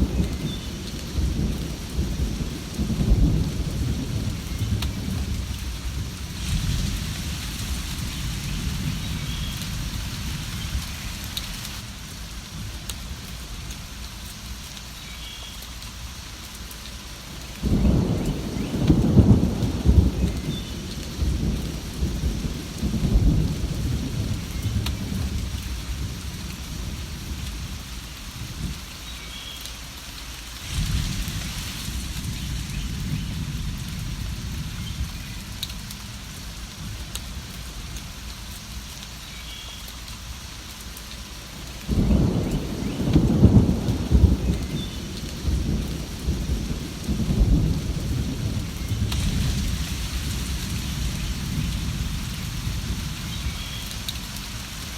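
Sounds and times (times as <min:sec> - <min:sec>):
rolling thunder: 0:00.0 - 0:11.8, 0:17.6 - 0:28.8, 0:30.6 - 0:38.0, 0:41.8 - 0:54.4
steady rain: 0:00.0 - 0:54.9
thunderclap: 0:17.6 - 0:27.5, 0:30.6 - 0:35.8, 0:41.9 - 0:53.6.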